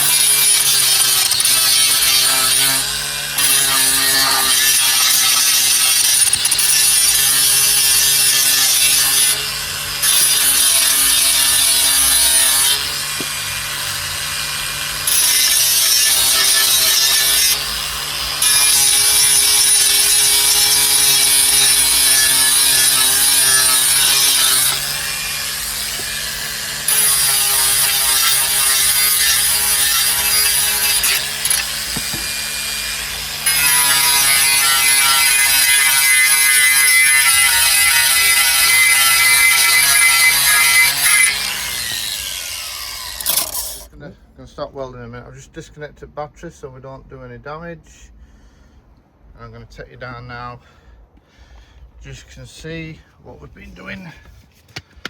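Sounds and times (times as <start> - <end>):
angle grinder grinding metal: 0.0 - 43.9.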